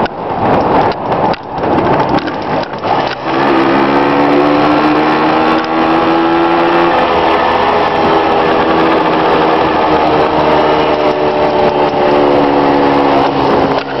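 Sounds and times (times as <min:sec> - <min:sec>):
wind rushing over microphone: 0:00.0 - 0:14.0
motorcycle engine running: 0:01.2 - 0:14.0.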